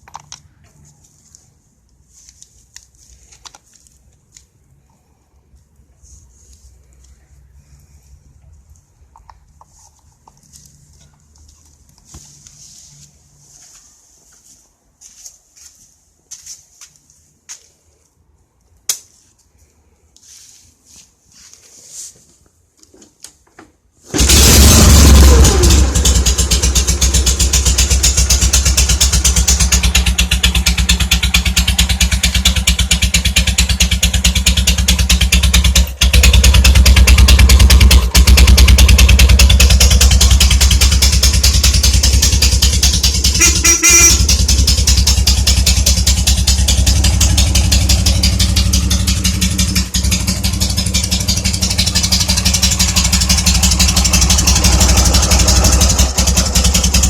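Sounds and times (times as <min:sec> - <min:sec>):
motorcycle engine running: 0:24.1 - 0:57.0.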